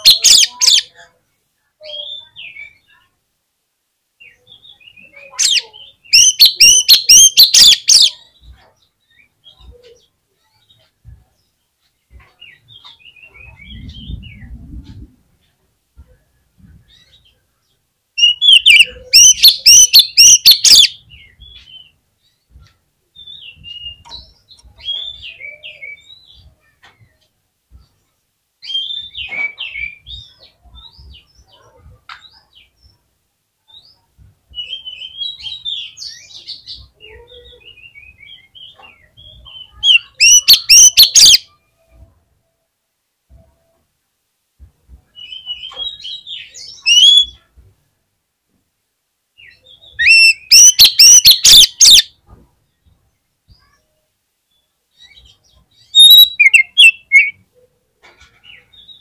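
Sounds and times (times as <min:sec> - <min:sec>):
bird singing whistled phrases: 0:05.4 - 0:08.2, 0:18.2 - 0:20.9, 0:39.6 - 0:41.4, 0:46.7 - 0:47.3, 0:49.5 - 0:52.1, 0:56.0 - 0:57.4.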